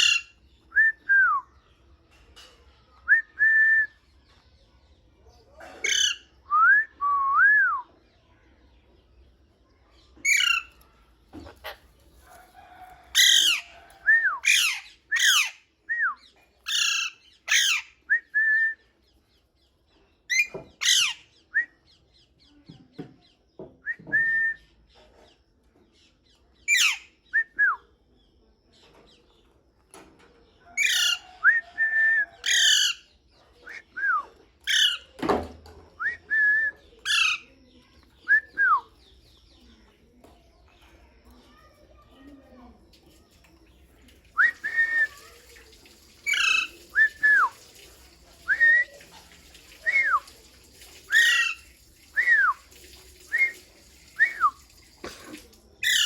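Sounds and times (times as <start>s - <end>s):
parrot harsh calls: 5.8s - 6.3s, 13.2s - 13.7s, 51.1s - 51.6s.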